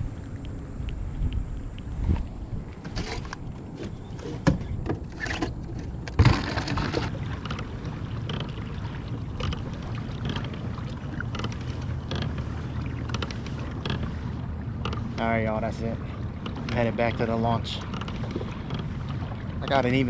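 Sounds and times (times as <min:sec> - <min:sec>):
low rumble: 0:00.0 - 0:13.1.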